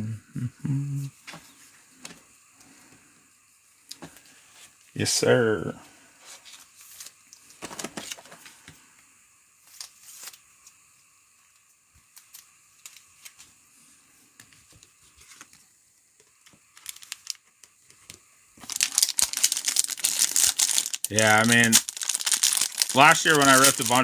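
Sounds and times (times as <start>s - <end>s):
cards rustling and clicking: 6.4s - 8.6s, 16.5s - 24.0s.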